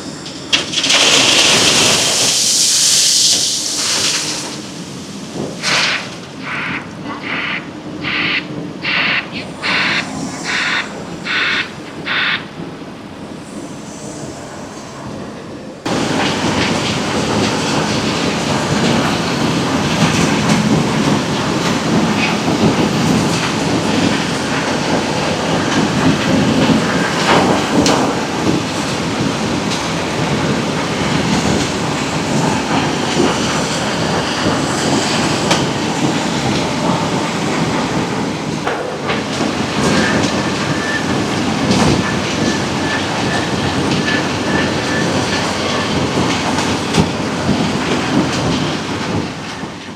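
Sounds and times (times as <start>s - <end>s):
heavy machinery clattering roar: 0.0s - 12.9s, 15.8s - 49.9s
hissing reversing alarm beeps: 6.4s - 12.5s.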